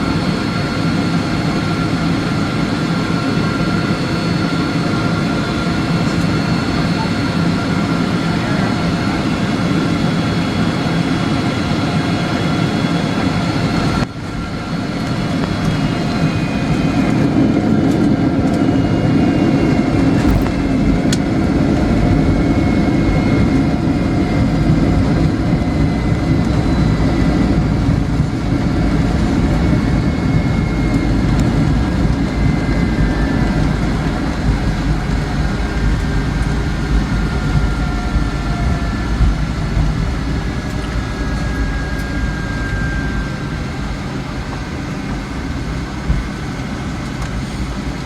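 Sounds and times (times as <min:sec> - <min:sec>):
aircraft engine and airflow rumble: 0:00.0 - 0:48.0
thin engine whine: 0:00.0 - 0:48.0
heavy low rumble: 0:13.5 - 0:48.0.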